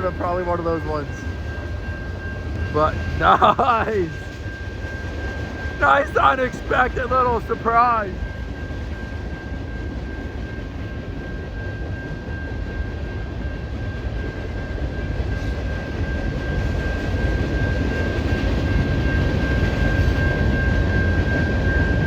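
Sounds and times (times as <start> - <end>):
thin high whine: 0.0 - 9.4
train wheels rumbling on rails: 0.0 - 22.0.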